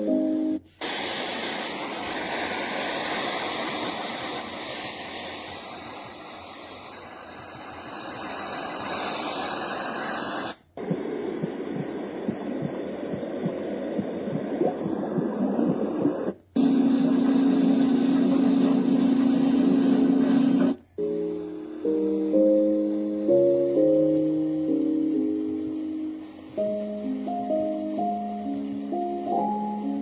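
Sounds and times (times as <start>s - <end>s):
white noise machine hiss: 0.0s - 30.0s
dull noise with low pulses: 10.7s - 20.9s.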